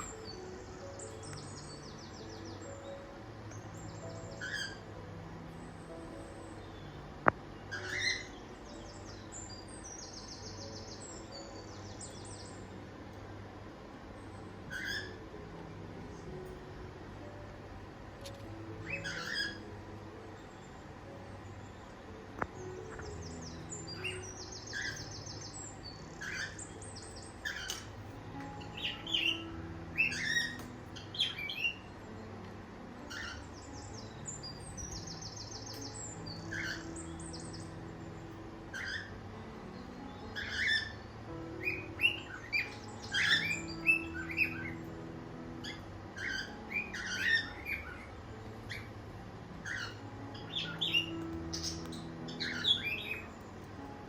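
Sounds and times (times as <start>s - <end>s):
buzzy bird trills: 0.0s - 7.0s, 7.6s - 12.8s, 18.2s - 20.6s, 22.6s - 31.9s, 33.0s - 45.0s, 45.6s - 49.0s, 49.6s - 53.9s
cockatiels chirping: 4.0s - 4.9s, 7.7s - 8.4s, 14.7s - 15.2s, 18.3s - 19.8s, 22.9s - 25.6s, 26.2s - 28.0s, 28.8s - 31.8s, 33.0s - 37.6s, 38.7s - 39.1s, 40.3s - 41.0s, 41.6s - 44.8s, 45.6s - 48.1s, 49.6s - 53.3s.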